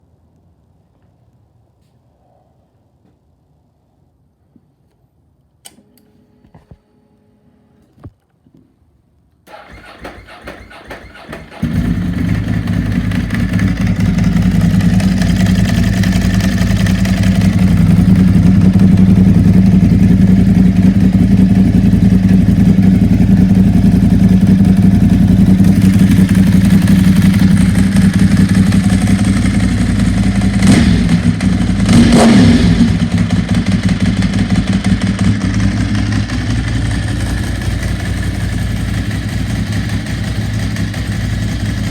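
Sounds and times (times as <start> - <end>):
motorcycle starter cranking: 9.5 - 13.8
motorcycle engine idling: 9.5 - 41.9
motorcycle throttle blips: 9.5 - 41.9.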